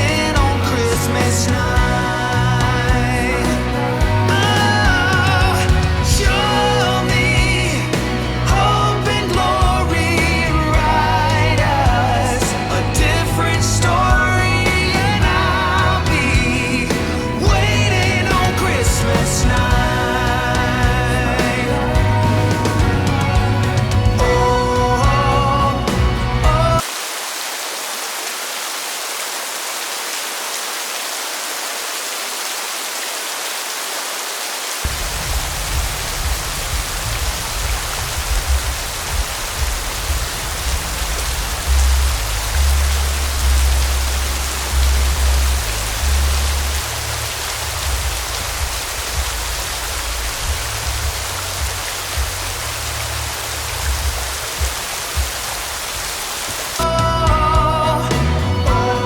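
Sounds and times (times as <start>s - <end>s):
background music with deep bass: 0.0s - 26.8s, 34.9s - 55.4s, 56.8s - 59.0s
steady hiss: 26.8s - 57.0s.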